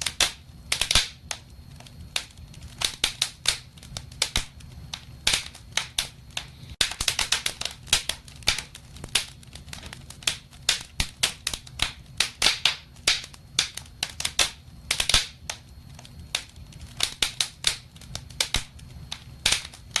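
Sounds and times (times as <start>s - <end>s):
low rumble of flames: 0.0s - 20.0s
wood fire crackling: 0.0s - 20.0s.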